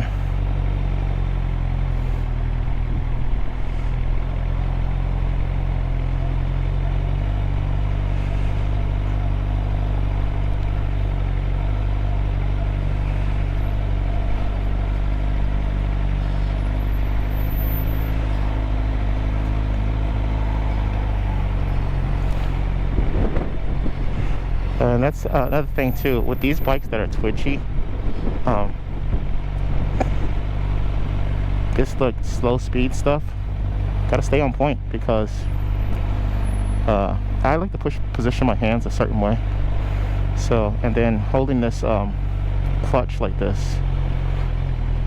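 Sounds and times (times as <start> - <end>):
motorcycle engine running at low revs: 0.0 - 45.0.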